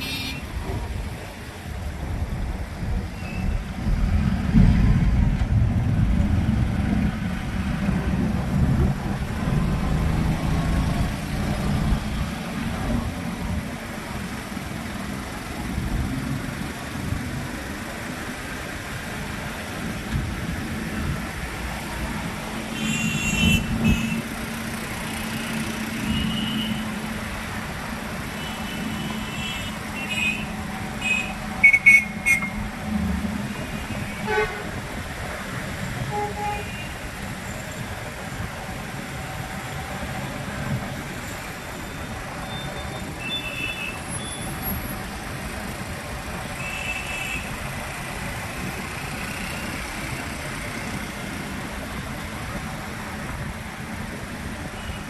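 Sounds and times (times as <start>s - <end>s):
vehicle horns honking: 0.0s - 0.5s, 22.8s - 24.2s, 26.0s - 26.9s, 28.4s - 32.6s, 33.6s - 34.8s, 36.0s - 37.0s, 42.5s - 44.5s, 46.6s - 47.6s
traffic engine hum and road noise: 0.0s - 55.0s.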